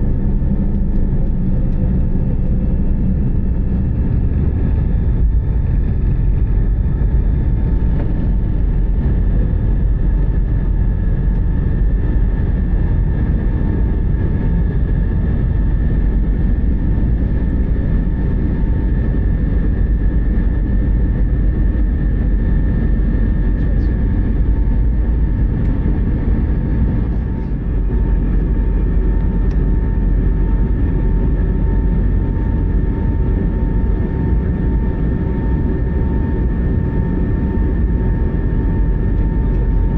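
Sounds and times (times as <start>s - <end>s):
engine whine: 0.0s - 39.9s
jet airliner cabin rumble: 0.0s - 39.9s.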